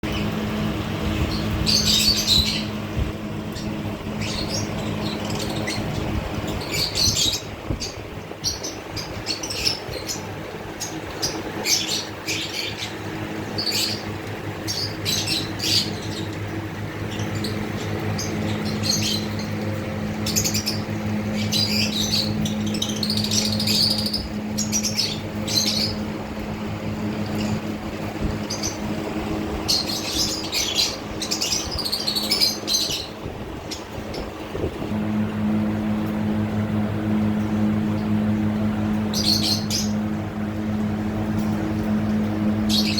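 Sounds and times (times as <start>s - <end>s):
birds chirping and squawking: 0.0s - 42.9s
steady low hum: 0.0s - 42.9s.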